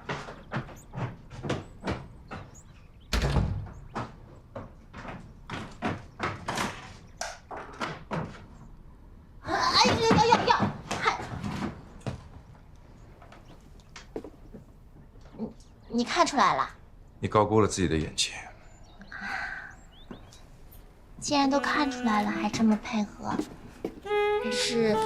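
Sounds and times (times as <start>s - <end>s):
door shutting with heavy thud: 3.1s - 4.0s.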